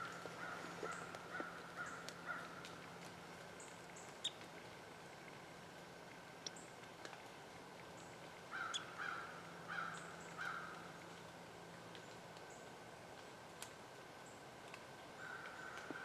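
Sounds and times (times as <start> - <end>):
faint ticks: 0.1 - 9.1.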